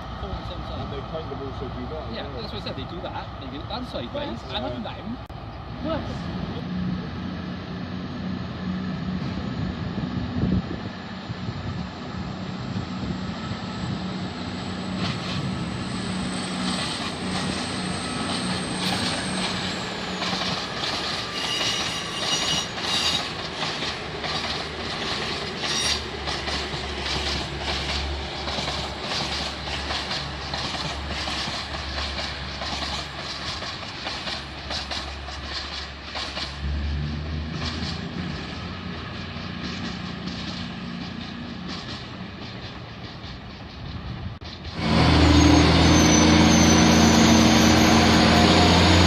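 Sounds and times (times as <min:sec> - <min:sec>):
high-pitched squeals: 0:13.4 - 0:23.4, 0:25.5 - 0:26.1, 0:44.7 - 0:49.0
train wheels clicking over rail joints: 0:16.2 - 0:45.1.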